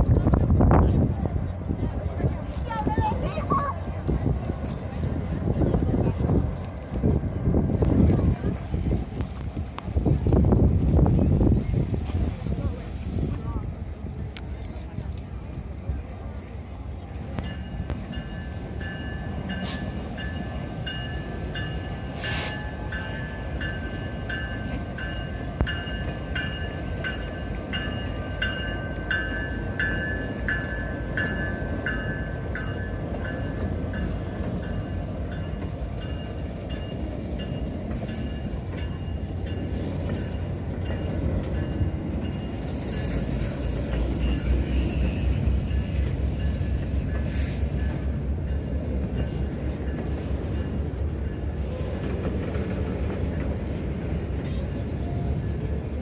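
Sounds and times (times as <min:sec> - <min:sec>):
train rumbling past: 0:00.0 - 0:56.0
hiss: 0:22.2 - 0:22.7, 0:42.6 - 0:45.6.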